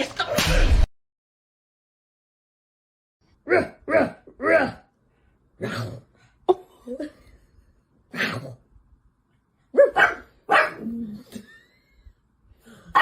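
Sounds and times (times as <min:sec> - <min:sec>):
dog barking: 0:09.7 - 0:11.0.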